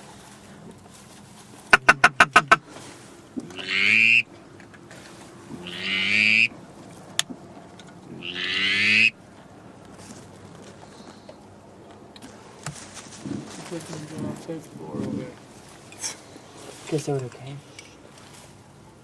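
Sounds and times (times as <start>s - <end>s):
duck call long notes: 1.7s - 2.8s, 3.4s - 4.4s, 5.5s - 6.6s, 8.1s - 9.2s.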